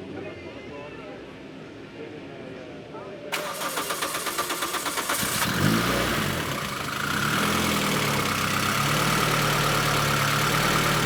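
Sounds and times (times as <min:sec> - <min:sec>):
car engine revving then idling: 0:03.4 - 0:11.0.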